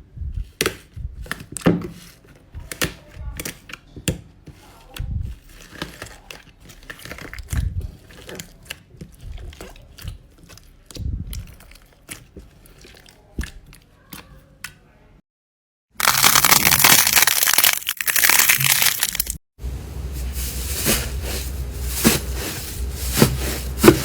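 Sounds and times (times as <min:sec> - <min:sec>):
slime squeezed by hand: 0:16.0 - 0:19.4.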